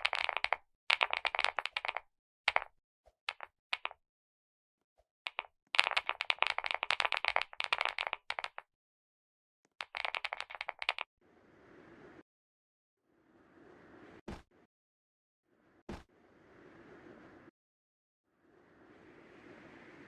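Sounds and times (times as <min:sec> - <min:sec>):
keyboard typing: 0:09.8 - 0:11.0.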